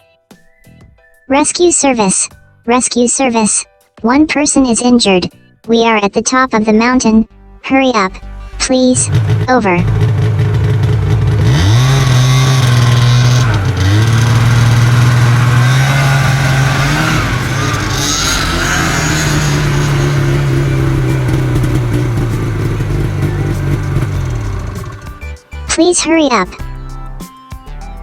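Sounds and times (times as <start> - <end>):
vehicle engine revving: 9.0 - 25.3.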